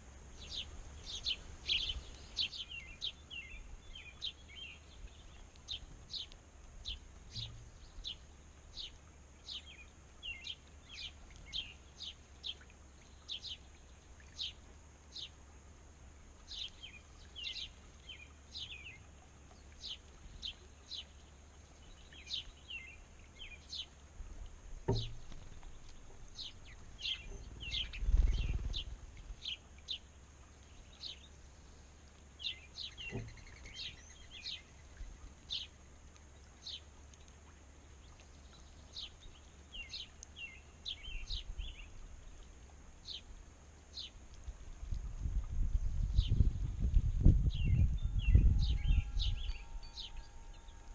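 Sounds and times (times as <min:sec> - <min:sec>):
small birds chirping: 0:00.0 - 0:50.9
soft knock: 0:24.8 - 0:25.4, 0:33.1 - 0:33.4.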